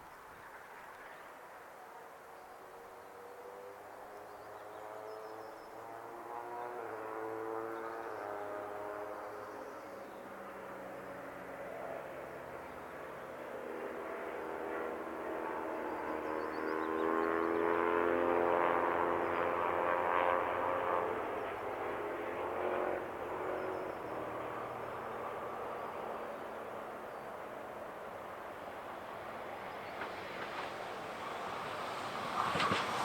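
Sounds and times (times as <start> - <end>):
electric train passing: 27.8 - 33.0.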